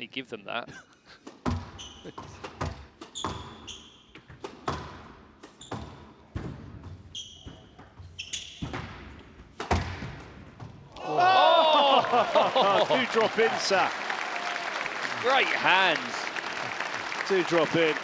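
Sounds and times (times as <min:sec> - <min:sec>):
squash ball hitting rackets and walls: 0:01.3 - 0:10.9
shoes squeaking on floor: 0:01.6 - 0:04.8, 0:05.4 - 0:08.9.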